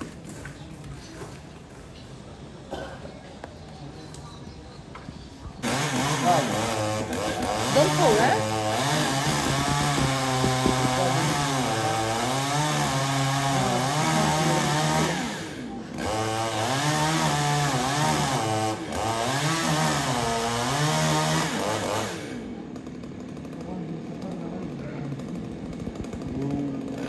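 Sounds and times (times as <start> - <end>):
chainsaw cutting: 5.6 - 27.0.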